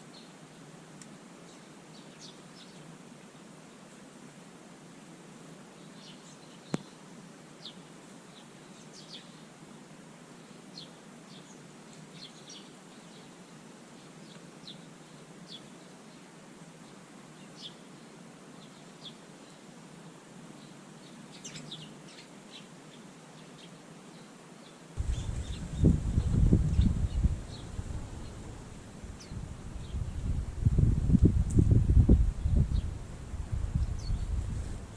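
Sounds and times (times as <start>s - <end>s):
faint steady hiss: 0.0s - 34.9s
birds chirping: 25.0s - 30.8s, 33.7s - 34.9s
loud low rumbling: 25.0s - 34.9s.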